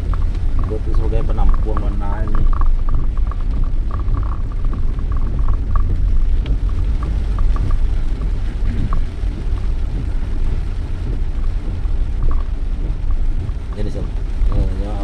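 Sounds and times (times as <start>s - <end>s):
car interior rumble: 0.0s - 15.0s
faint light ticks: 0.0s - 15.0s.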